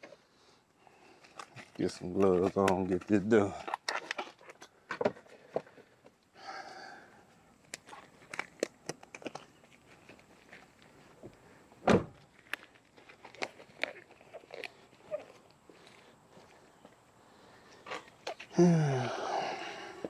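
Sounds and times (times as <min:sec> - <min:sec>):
gloves rustling and snapping: 0:01.1 - 0:04.8, 0:07.5 - 0:11.4, 0:12.3 - 0:17.0.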